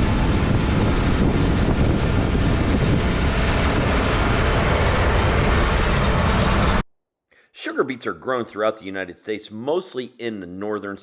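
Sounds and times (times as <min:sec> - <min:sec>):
heavy farm machinery running: 0:00.0 - 0:06.8.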